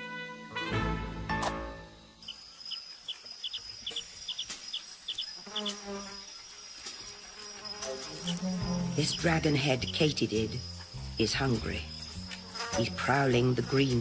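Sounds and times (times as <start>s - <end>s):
documentary music: 0.0s - 2.5s, 7.5s - 14.0s
insect buzz: 0.4s - 14.0s
insect paired chirps: 1.4s - 14.0s
lower insect call: 1.4s - 14.0s.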